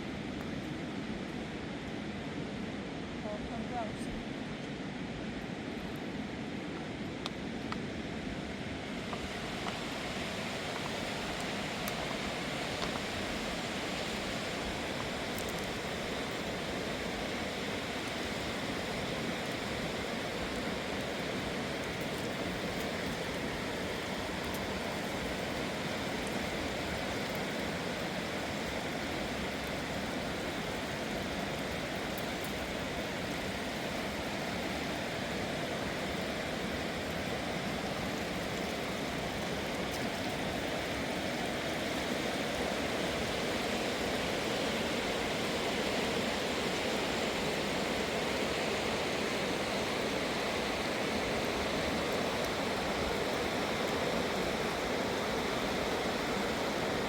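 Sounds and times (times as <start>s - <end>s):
river rushing: 6.9s - 57.0s.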